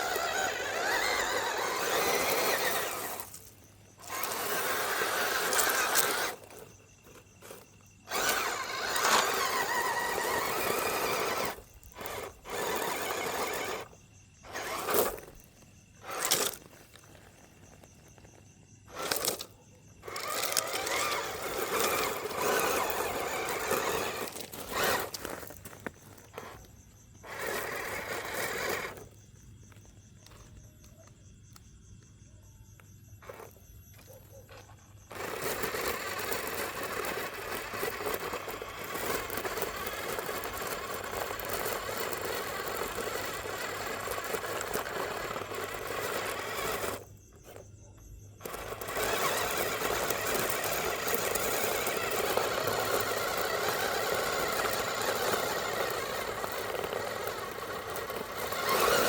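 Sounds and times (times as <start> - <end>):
toy truck electric motor whirring: 0.0 - 30.6, 33.2 - 59.0.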